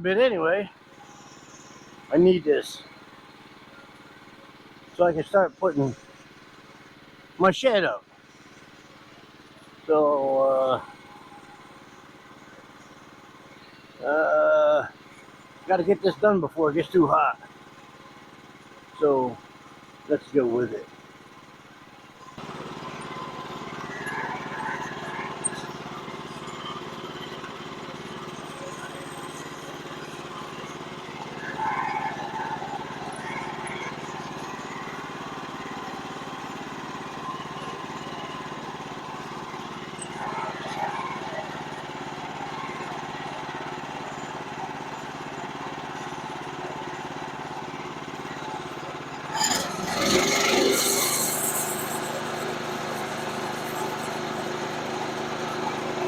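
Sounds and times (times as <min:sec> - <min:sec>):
small gasoline engine running: 0:00.0 - 0:56.0
harsh burst of noise: 0:49.3 - 0:56.0.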